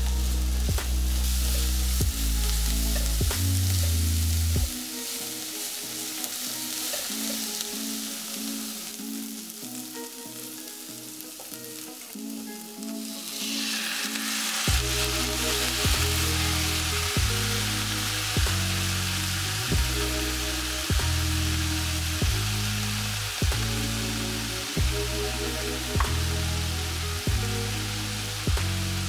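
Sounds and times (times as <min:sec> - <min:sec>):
background music: 0:00.0 - 0:29.0
vegetables sizzling in oil: 0:00.0 - 0:29.0.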